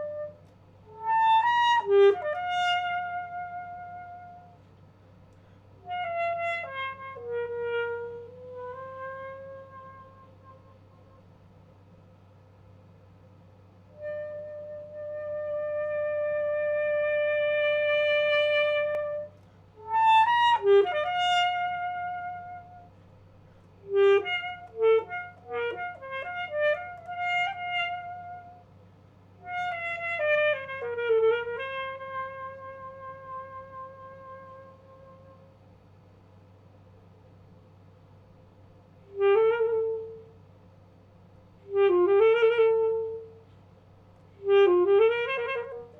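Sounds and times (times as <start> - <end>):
alto saxophone playing: 0.0 - 4.7, 5.4 - 11.5, 13.9 - 23.0, 23.7 - 28.8, 29.4 - 35.7, 39.0 - 40.5, 41.5 - 43.6, 44.2 - 45.9
faint steady hum: 0.0 - 45.9.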